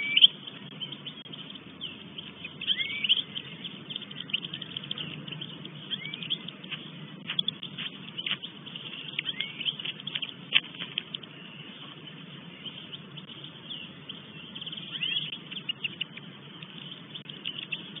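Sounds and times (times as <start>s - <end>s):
birds chirping: 0.0s - 18.0s
low background rumble: 0.0s - 18.0s.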